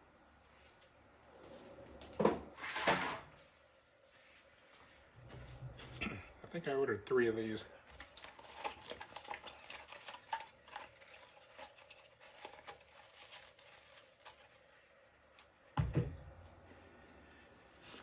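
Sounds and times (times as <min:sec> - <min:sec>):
rustling packaging: 0:07.8 - 0:15.8.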